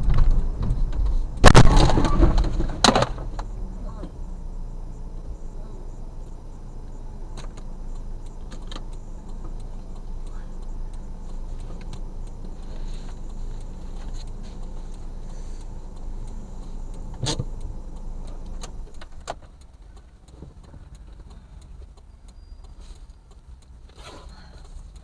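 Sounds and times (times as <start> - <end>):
car engine idling: 0.0 - 25.0
sharp clicks: 6.2 - 25.0.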